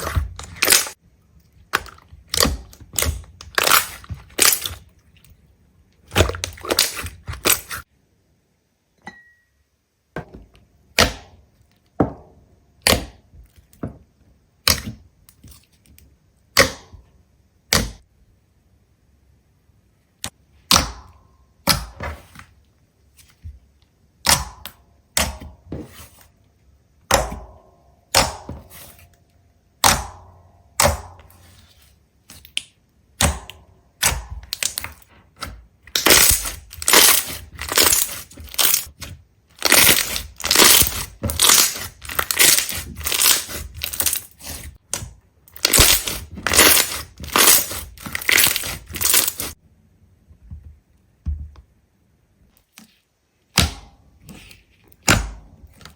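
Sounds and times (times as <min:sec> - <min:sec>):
brittle material cracking: 0:01.7 - 0:04.9, 0:34.0 - 0:35.1, 0:35.9 - 0:49.6.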